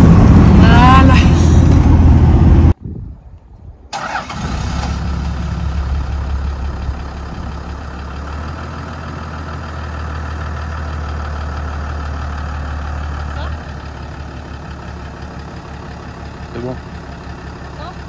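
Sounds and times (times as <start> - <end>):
engine starting and idling: 3.9 - 18.0.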